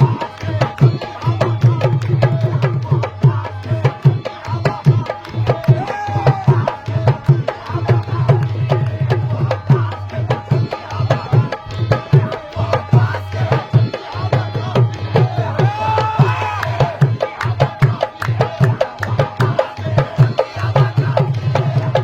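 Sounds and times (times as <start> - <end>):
hand drums playing fast rhythm: 0.0 - 22.0.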